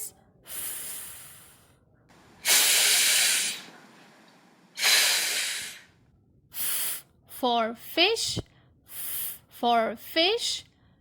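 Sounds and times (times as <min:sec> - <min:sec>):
woman making hissing f sound: 0:02.4 - 0:03.7, 0:04.8 - 0:05.9.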